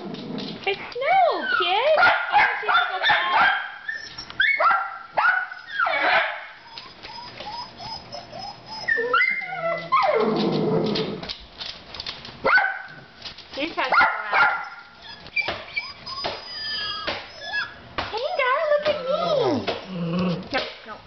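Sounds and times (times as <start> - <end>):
dog whining and yipping: 1.3 - 1.9, 3.8 - 4.8, 5.5 - 11.2, 14.4 - 20.4.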